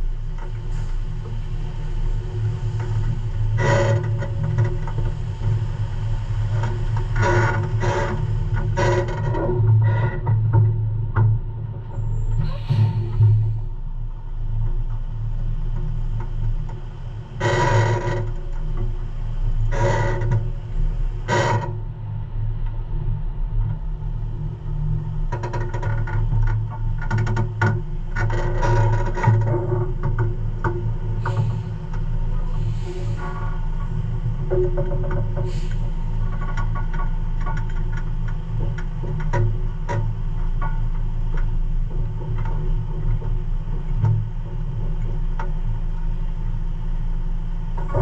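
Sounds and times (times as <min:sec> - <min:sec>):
diesel truck engine rumbling: 0:11.9 - 0:14.5, 0:30.4 - 0:34.5, 0:35.3 - 0:37.3.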